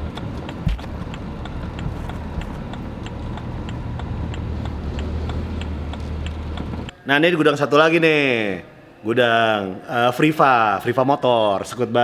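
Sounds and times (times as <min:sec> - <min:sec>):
low steady rumble: 0:00.0 - 0:06.9
footsteps walking: 0:00.2 - 0:02.9.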